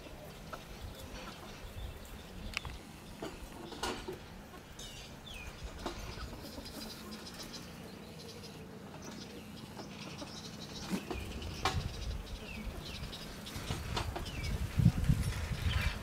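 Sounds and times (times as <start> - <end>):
birds chirping: 0.0 - 16.0
wind rumble on microphone: 11.1 - 16.0.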